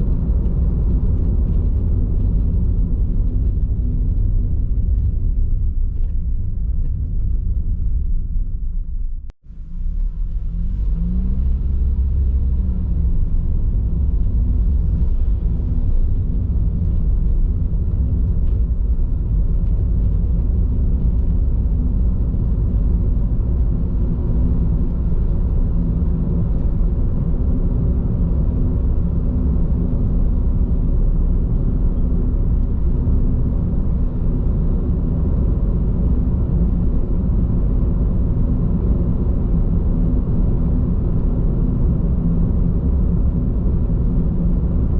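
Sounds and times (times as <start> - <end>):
tyre road rumble inside car: 0.0 - 44.9
car engine revving up: 9.7 - 16.1.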